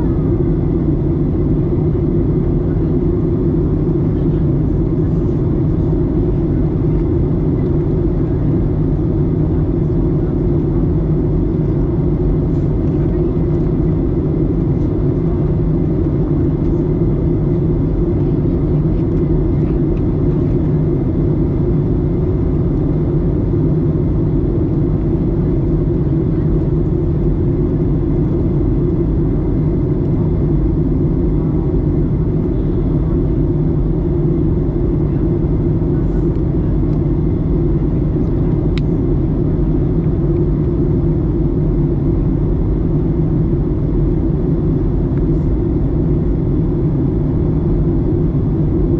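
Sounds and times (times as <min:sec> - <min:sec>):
airliner cabin engine rush: 0:00.0 - 0:48.9.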